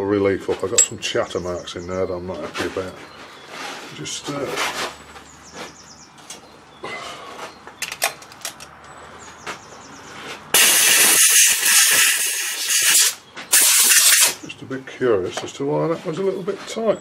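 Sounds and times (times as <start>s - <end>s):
tool handling clicks and knocks: 0.6s - 1.0s, 7.7s - 9.6s
pressurised spray hissing: 10.6s - 14.4s.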